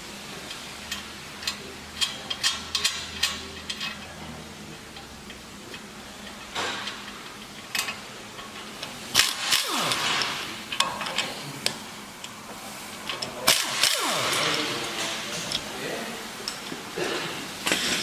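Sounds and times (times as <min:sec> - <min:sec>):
impact wrench whining: 0:09.1 - 0:11.4, 0:13.4 - 0:15.8.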